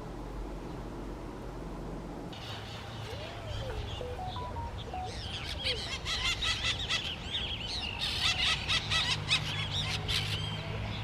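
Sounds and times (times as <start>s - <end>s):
birds chirping in chorus: 2.4s - 11.0s.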